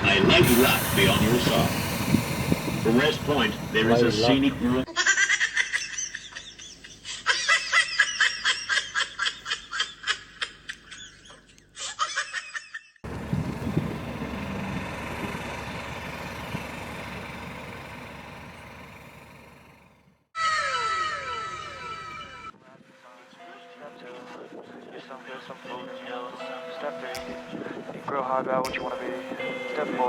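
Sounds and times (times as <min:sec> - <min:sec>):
high-pitched laughter: 0:04.9 - 0:13.0, 0:20.4 - 0:22.5.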